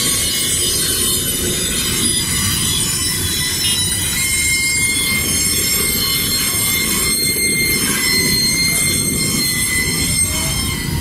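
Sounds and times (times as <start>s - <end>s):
high-pitched wheel squeal: 0.0s - 11.0s
steel wheels rumbling on rails: 0.0s - 11.0s.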